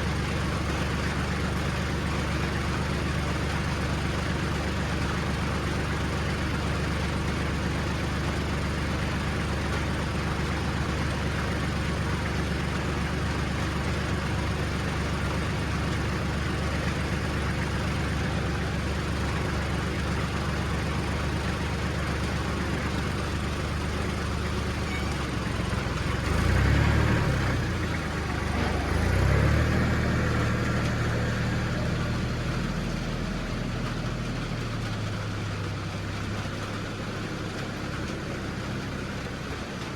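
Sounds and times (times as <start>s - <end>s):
vehicle engine running and revving: 24.3s - 39.9s.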